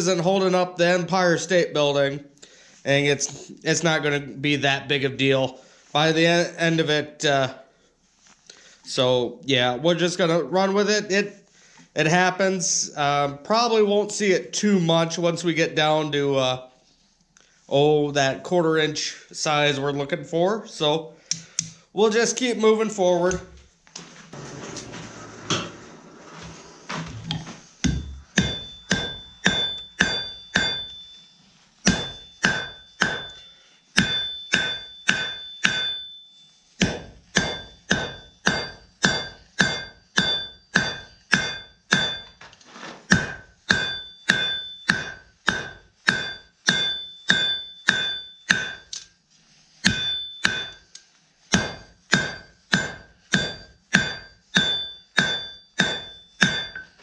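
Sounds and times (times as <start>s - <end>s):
hammer striking steel on anvil: 27.8s - 31.2s, 31.8s - 36.2s, 36.8s - 42.4s, 43.1s - 49.1s, 49.8s - 50.9s, 51.5s - 57.0s
anvil ringing: 28.0s - 42.4s, 43.1s - 49.0s, 49.8s - 50.8s, 51.6s - 57.0s.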